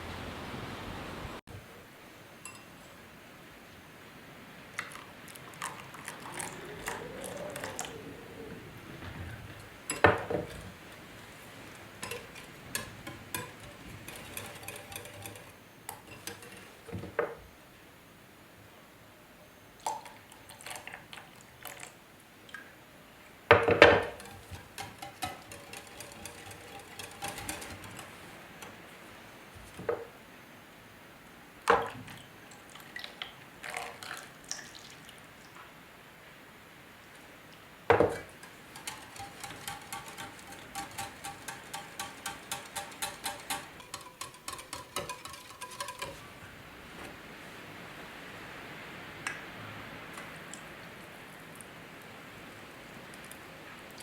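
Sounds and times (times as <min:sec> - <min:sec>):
dishes and utensils clinking: 0:02.4 - 0:02.9, 0:05.6 - 0:08.5, 0:09.9 - 0:10.7, 0:11.7 - 0:17.4, 0:23.5 - 0:28.8, 0:37.9 - 0:46.5.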